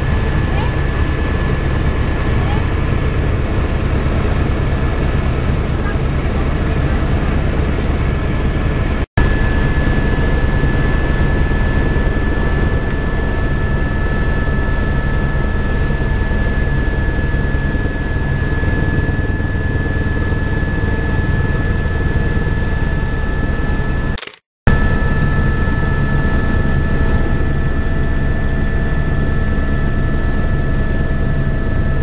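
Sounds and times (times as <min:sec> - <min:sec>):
helicopter engine and rotor: 0:00.0 - 0:32.0
high whine: 0:08.8 - 0:32.0.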